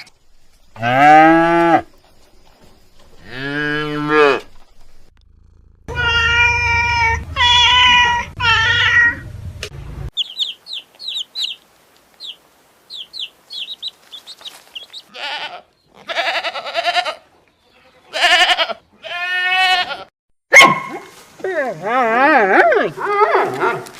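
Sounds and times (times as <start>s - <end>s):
drawn-out goat bleats: 3.2s - 4.5s, 5.9s - 9.2s, 15.1s - 20.1s
small birds chirping: 10.1s - 16.1s.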